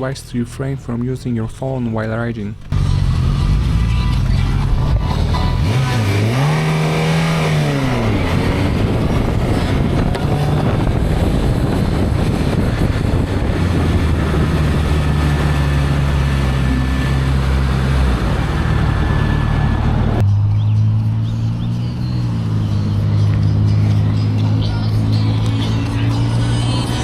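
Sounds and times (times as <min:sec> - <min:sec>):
road and wind roar: 0:00.0 - 0:27.0
vehicle engine revving: 0:02.6 - 0:27.0.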